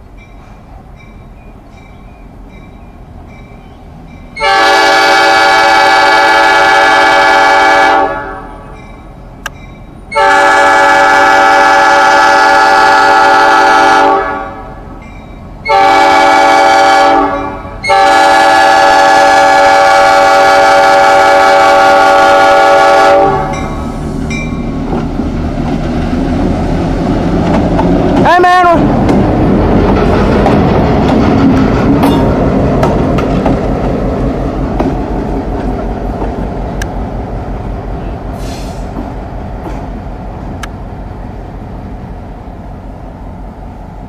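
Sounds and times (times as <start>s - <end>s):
train rumbling past: 0.0s - 44.0s
locomotive air horn: 4.4s - 8.8s, 10.1s - 14.9s, 15.6s - 23.7s, 38.0s - 39.0s.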